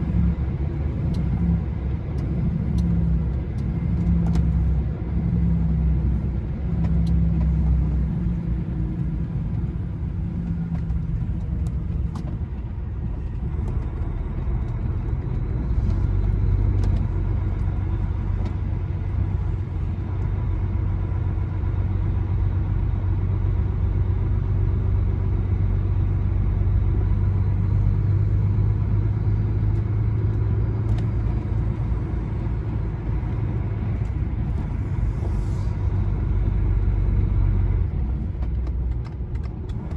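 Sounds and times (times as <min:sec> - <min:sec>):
lorry engine drone: 0:00.0 - 0:39.9
road noise: 0:00.0 - 0:39.9.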